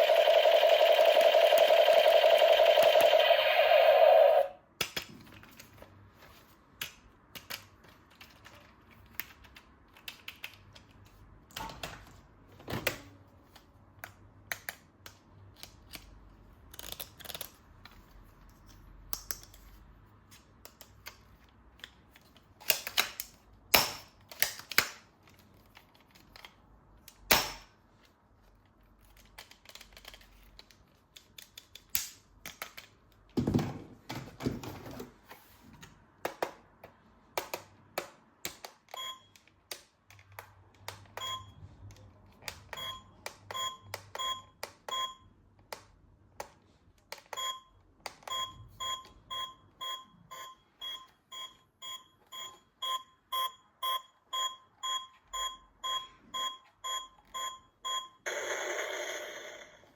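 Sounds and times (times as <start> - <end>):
electronic held tones: 0.0 - 4.6.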